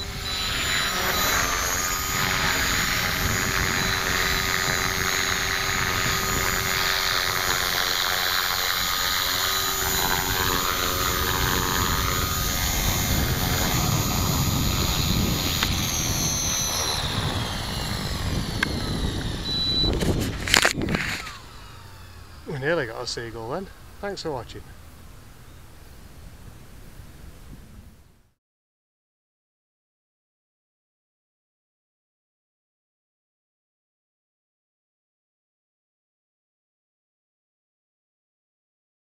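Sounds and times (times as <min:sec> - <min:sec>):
helicopter rotor noise: 0:00.0 - 0:25.0
rc helicopter motor whine: 0:00.0 - 0:25.8.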